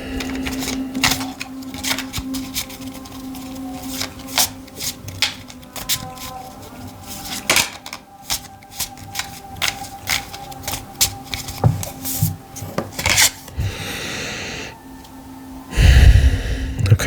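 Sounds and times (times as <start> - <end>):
person breathing: 0.0 - 1.5, 13.5 - 14.8, 15.7 - 17.0
cards being shuffled: 0.0 - 13.6.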